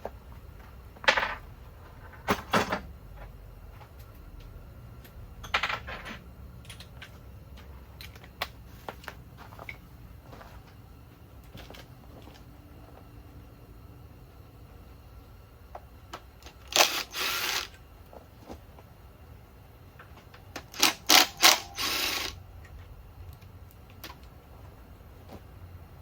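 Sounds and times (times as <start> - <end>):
power tool rattling whir: 16.5 - 17.8, 20.6 - 22.4
hand tools clicking: 20.6 - 22.4.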